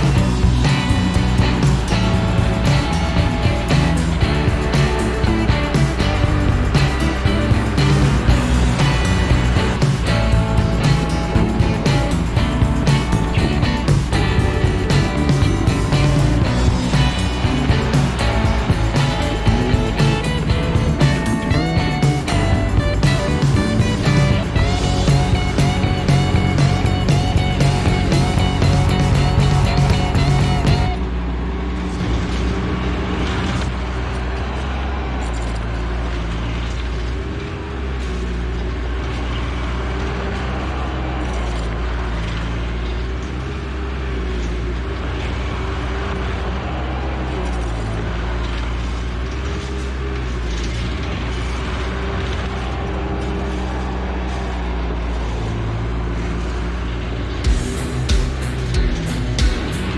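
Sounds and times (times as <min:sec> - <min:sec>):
diesel engine droning: 0:00.0 - 0:59.9.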